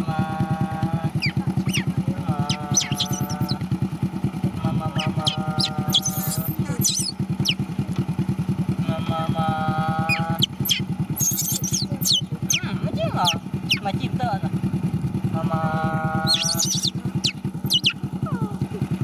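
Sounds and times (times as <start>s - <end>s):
small motorcycle engine idling: 0.0s - 19.0s
long steady cry: 1.0s - 3.6s, 5.0s - 7.6s, 10.1s - 12.6s, 16.3s - 18.6s
short high squeaks: 1.2s - 1.9s, 2.5s - 3.6s, 5.0s - 7.6s, 10.1s - 12.6s, 16.3s - 18.0s.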